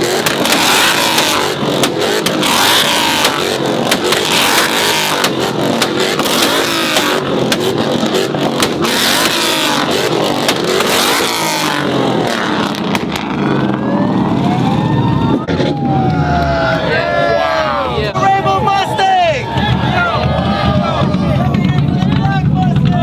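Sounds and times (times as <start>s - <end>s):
engine pops and crackles: 0.0s - 13.8s, 19.4s - 23.0s
car engines revving hard: 0.0s - 23.0s.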